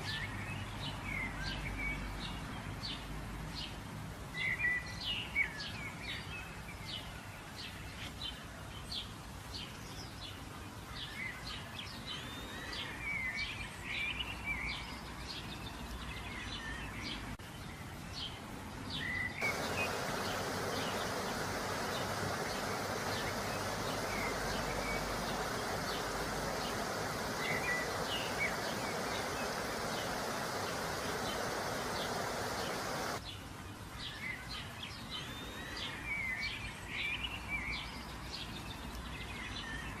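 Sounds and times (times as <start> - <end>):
steady background hiss: 0.0 - 39.4
birds chirping: 19.4 - 33.2
loud even hiss: 19.4 - 33.2.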